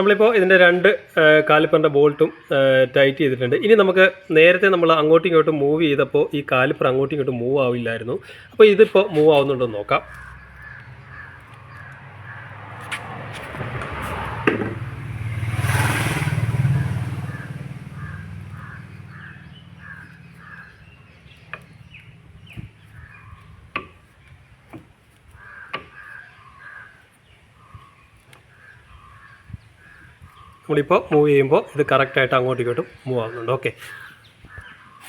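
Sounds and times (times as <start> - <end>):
crows cawing: 8.3 - 13.4, 17.1 - 21.4, 22.8 - 24.0, 25.3 - 31.2, 33.0 - 35.0
motor vehicle passing: 8.3 - 35.0.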